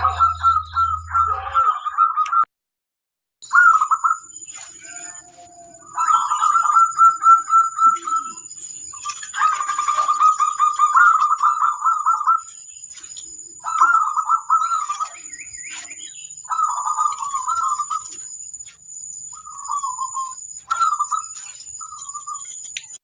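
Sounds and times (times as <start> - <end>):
high-pitched steady tone: 0.0 - 1.8
dove cooing trills: 0.0 - 2.4, 3.4 - 18.4, 19.3 - 22.6.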